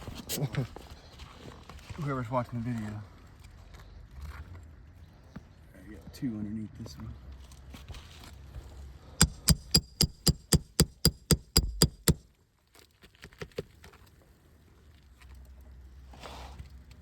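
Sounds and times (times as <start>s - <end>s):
hammer striking steel nail puller: 9.2s - 12.2s
light taps and clicks: 9.2s - 12.2s.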